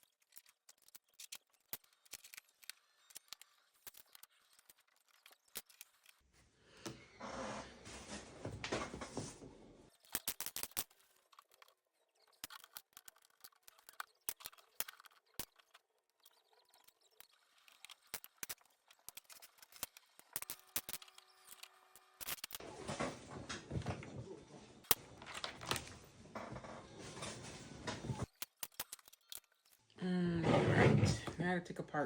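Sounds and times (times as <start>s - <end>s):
loose pieces rustling: 0.0s - 6.2s, 9.9s - 22.6s, 28.2s - 29.9s
plastic bricks clicking and snapping: 0.0s - 6.2s, 10.0s - 22.6s, 28.2s - 29.8s.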